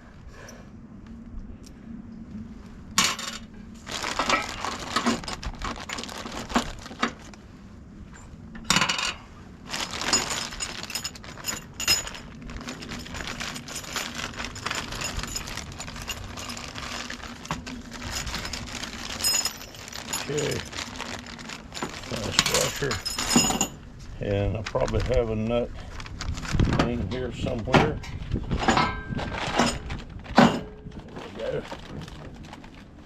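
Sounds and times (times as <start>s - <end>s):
metal hardware clinking and rattling: 9.8s - 23.8s, 27.9s - 30.8s.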